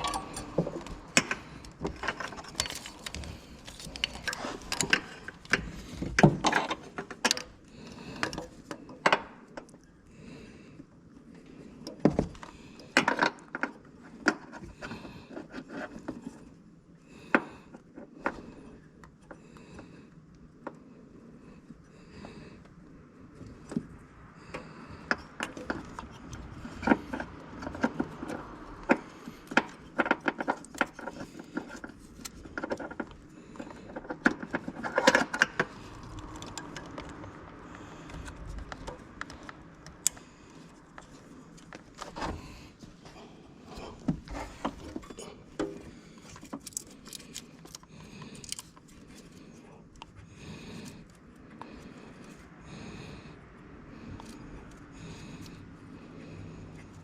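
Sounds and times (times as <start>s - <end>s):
metal parts clattering: 0.0s - 5.5s
hand tools clicking and scraping: 0.0s - 9.7s, 23.6s - 52.9s.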